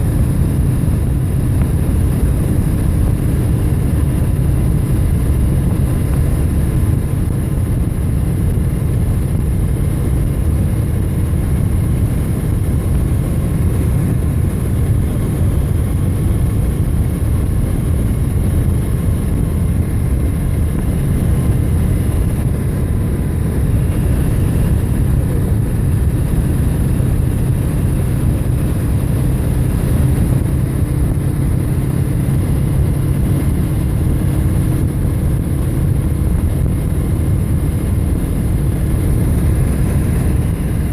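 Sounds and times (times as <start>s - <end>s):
wind and road noise: 0.0s - 40.9s.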